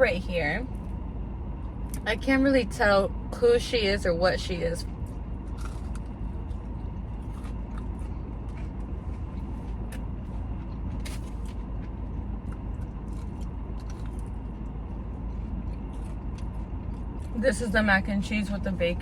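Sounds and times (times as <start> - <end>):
steady low hum: 0.0 - 19.0
person chewing crunchy food: 4.8 - 17.4.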